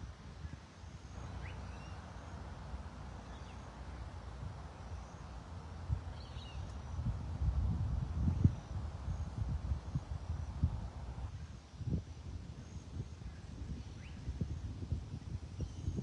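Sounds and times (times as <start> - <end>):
wind rumbling on microphone: 0.0 - 16.0
faint bird chirps: 0.4 - 2.4, 3.2 - 5.5, 6.1 - 7.2, 12.6 - 14.4, 15.5 - 16.0.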